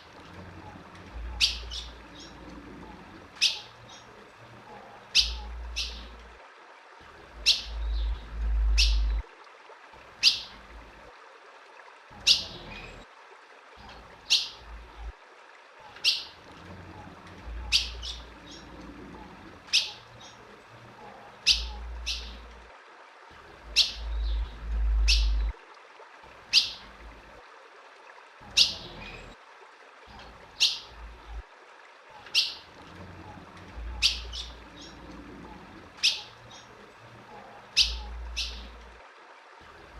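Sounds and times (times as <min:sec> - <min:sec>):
bird chip calls: 0:01.3 - 0:02.4, 0:03.4 - 0:04.1, 0:05.1 - 0:06.2, 0:07.4 - 0:09.2, 0:19.7 - 0:20.4, 0:21.4 - 0:22.4, 0:23.7 - 0:25.5, 0:32.2 - 0:32.7, 0:33.9 - 0:35.0, 0:36.0 - 0:36.7, 0:37.7 - 0:38.8
low rumbles: 0:07.3 - 0:09.2, 0:23.6 - 0:25.6.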